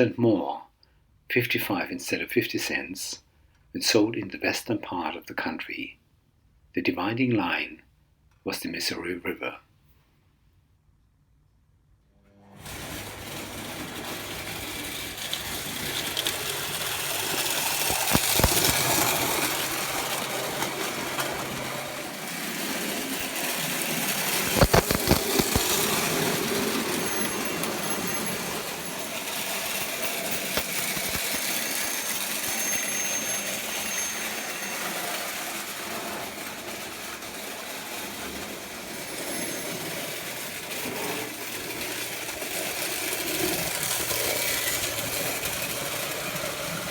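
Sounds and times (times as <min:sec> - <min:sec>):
toy train motor and wheels whirring: 0:12.4 - 0:46.9.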